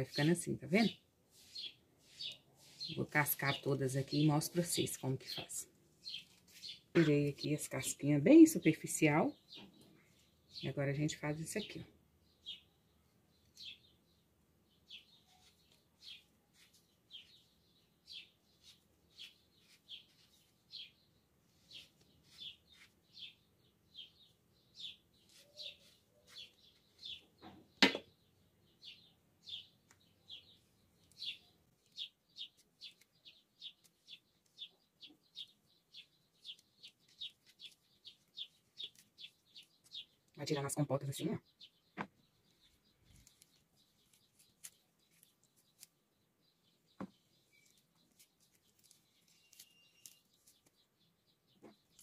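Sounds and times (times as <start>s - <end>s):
bird chirping: 0.0s - 52.0s
sharp knock: 27.8s - 28.0s.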